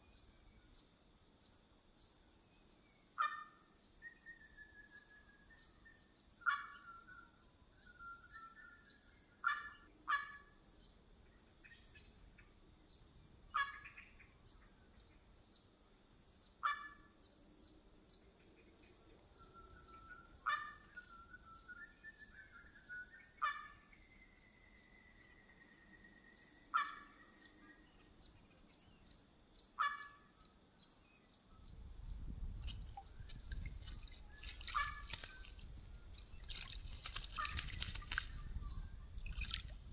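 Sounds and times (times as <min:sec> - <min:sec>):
high-pitched bird chirping: 0:31.8 - 0:39.9.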